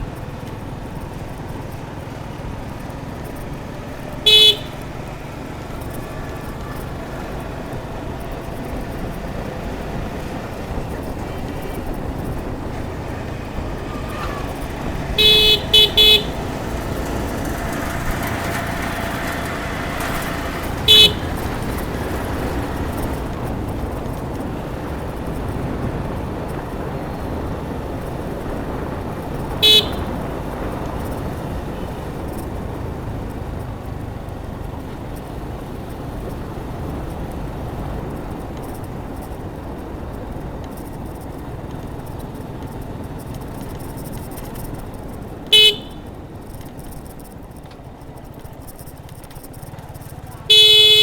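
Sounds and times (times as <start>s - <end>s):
motorcycle wind and road noise: 0.0s - 51.0s
motorcycle horn beeps: 2.8s - 23.3s, 29.5s - 32.5s, 45.4s - 46.2s, 50.3s - 51.0s.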